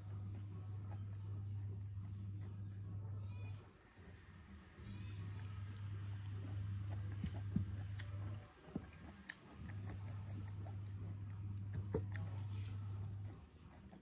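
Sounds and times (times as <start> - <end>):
low steady hum: 0.0 - 14.0
person chewing: 5.4 - 12.7.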